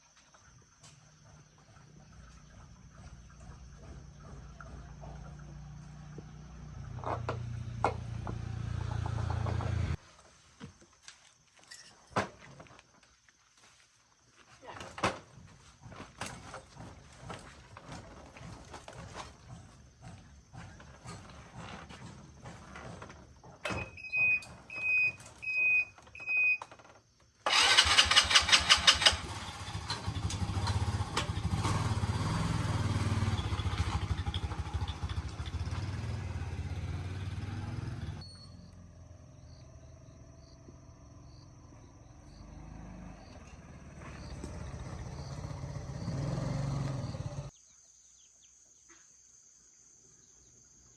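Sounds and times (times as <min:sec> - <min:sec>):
small engine running: 0:01.8 - 0:10.0, 0:27.5 - 0:47.5.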